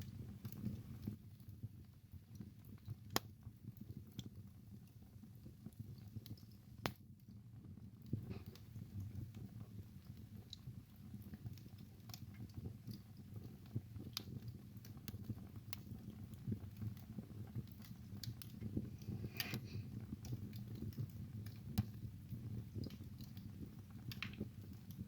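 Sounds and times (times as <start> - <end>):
wood fire crackling: 0.0 - 25.0
fire hiss: 18.8 - 20.1.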